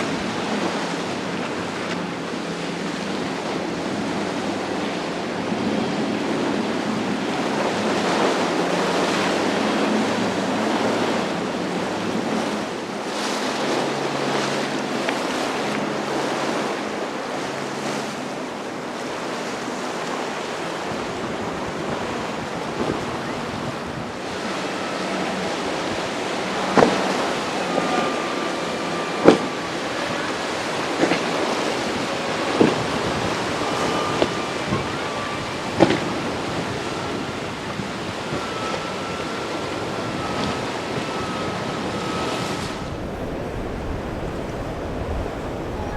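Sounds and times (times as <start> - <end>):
surf: 0.0 - 45.9
wind buffeting microphone: 0.0 - 45.9
low engine hum: 21.0 - 45.9.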